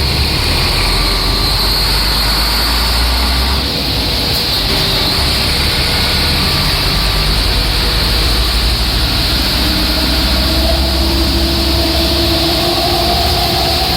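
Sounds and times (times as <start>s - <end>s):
rain hissing: 0.0s - 13.9s
train engine rumble: 0.0s - 13.9s.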